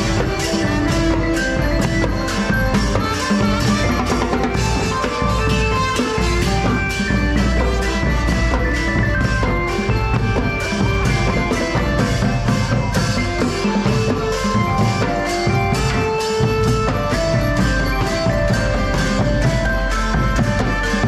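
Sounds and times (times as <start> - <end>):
brass band horn melody: 0.0 - 10.0
drum kit beat: 0.0 - 21.0.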